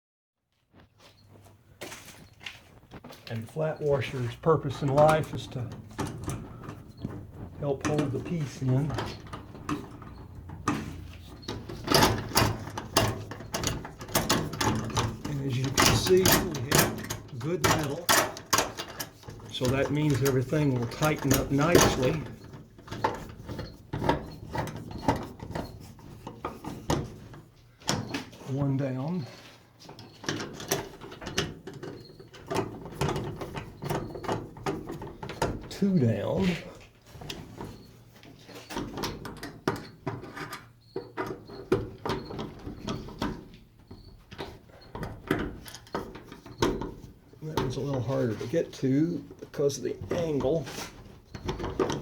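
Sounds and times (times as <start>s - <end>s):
screw scraping and clicking: 4.8s - 28.3s.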